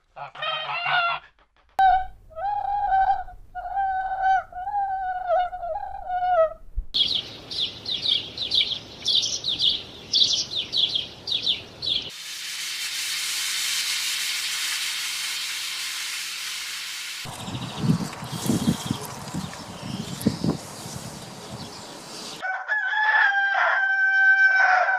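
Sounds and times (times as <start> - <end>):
high-pitched bird chirping: 17.3 - 22.4.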